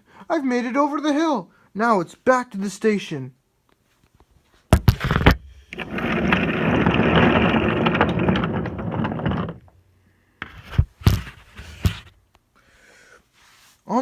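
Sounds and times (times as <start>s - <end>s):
sharp wooden knocks: 4.8s - 9.8s
toy train rolling on wooden track: 5.0s - 9.8s.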